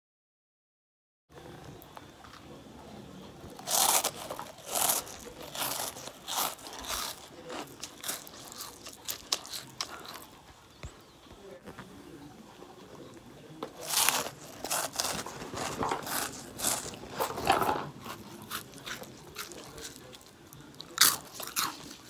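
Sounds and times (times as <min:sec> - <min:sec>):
crunching and chewing snack: 0:03.3 - 0:11.1, 0:13.6 - 0:22.0.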